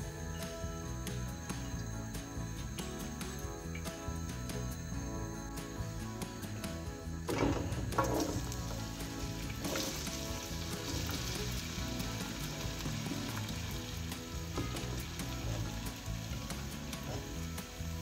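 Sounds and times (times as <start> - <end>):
potatoes sizzling in hot oil: 7.9 - 18.0.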